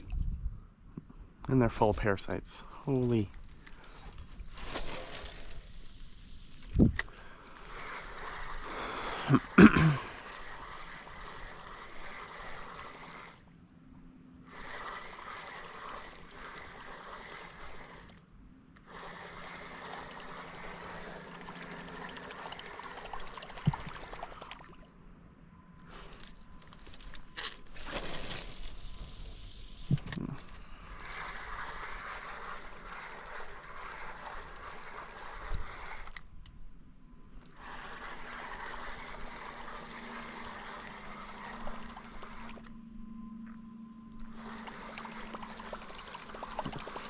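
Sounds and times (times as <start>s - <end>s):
water trickling and splashing: 10.1s - 13.4s, 14.5s - 18.2s, 18.9s - 24.9s, 37.6s - 42.7s, 44.3s - 47.0s.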